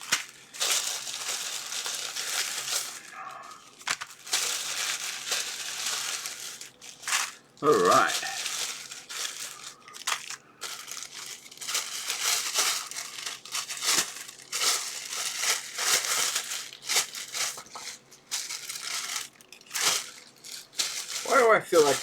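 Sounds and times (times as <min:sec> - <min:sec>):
plastic bag crinkling and rustling: 0:00.0 - 0:22.0.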